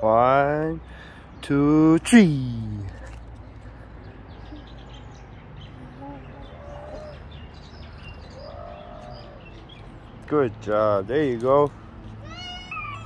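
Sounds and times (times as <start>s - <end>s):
outdoor background noise: 0.0s - 13.0s
faint bird chirps and calls: 2.4s - 10.4s, 12.2s - 13.0s.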